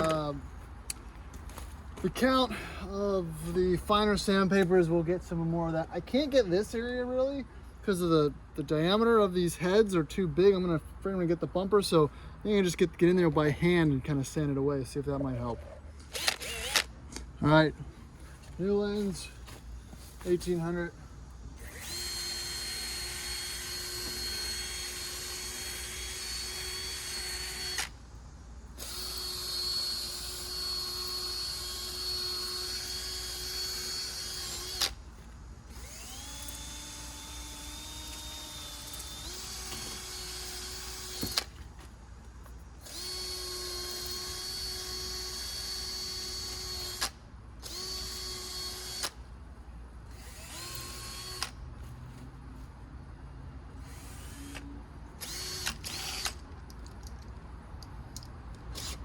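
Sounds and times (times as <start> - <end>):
power drill sanding plastic: 21.6 - 27.9.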